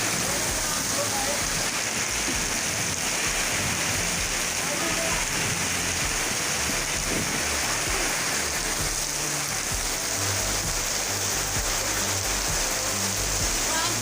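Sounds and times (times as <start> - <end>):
wind rumbling: 0.0 - 11.0
heavy rain pouring: 0.0 - 14.0.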